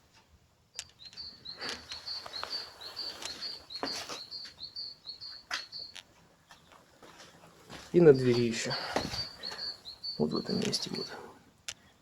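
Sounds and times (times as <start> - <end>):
high chirping call: 0.7 - 6.1, 8.0 - 11.3.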